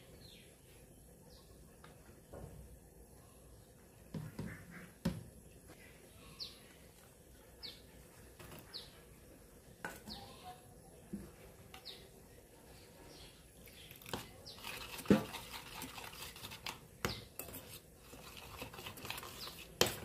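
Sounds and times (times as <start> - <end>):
bird chirping: 7.6 - 7.9, 8.6 - 9.0.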